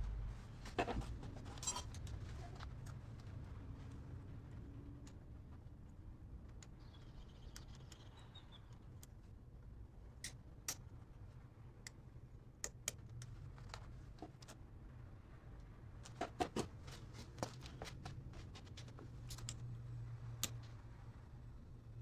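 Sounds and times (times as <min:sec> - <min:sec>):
low steady hum: 0:00.0 - 0:06.5.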